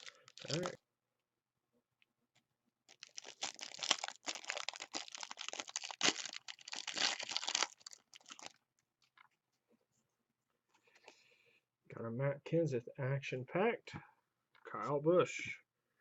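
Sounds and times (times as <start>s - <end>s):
cellophane crinkling: 0.0s - 0.8s, 2.9s - 9.3s.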